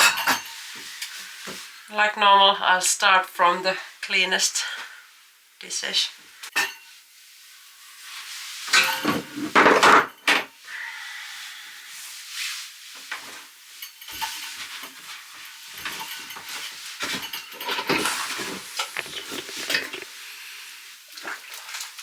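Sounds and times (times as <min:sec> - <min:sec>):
plates and cutlery clattering: 0:00.0 - 0:00.6, 0:08.7 - 0:10.4, 0:13.8 - 0:20.1
water hissing: 0:17.6 - 0:21.1.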